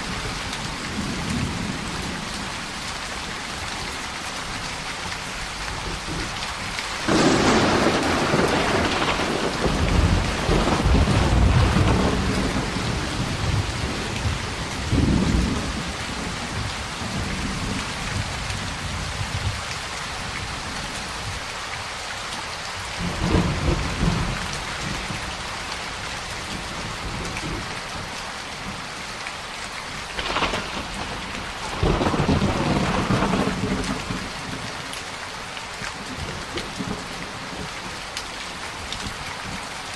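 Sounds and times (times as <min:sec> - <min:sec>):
heavy rain: 0:00.0 - 0:39.9
thunder cracking and rumbling: 0:07.1 - 0:19.6, 0:23.0 - 0:25.2, 0:30.1 - 0:34.7.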